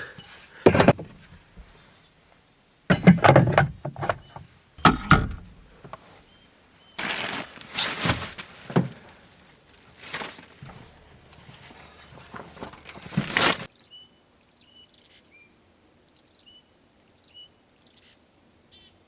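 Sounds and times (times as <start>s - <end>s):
rustling and shuffling: 0.0s - 2.1s, 2.9s - 6.3s, 7.0s - 13.7s
objects knocking and thunking: 0.6s - 1.8s, 2.9s - 6.0s.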